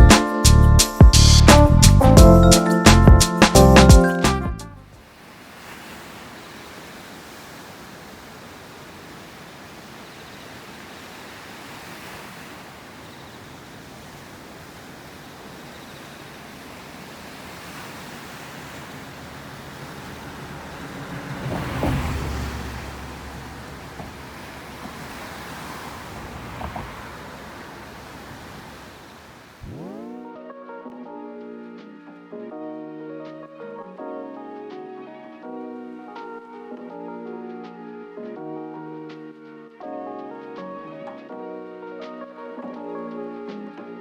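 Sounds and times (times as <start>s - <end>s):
ocean surf washing on beach: 5.0s - 30.2s
wave rush with low rumble: 16.8s - 30.3s.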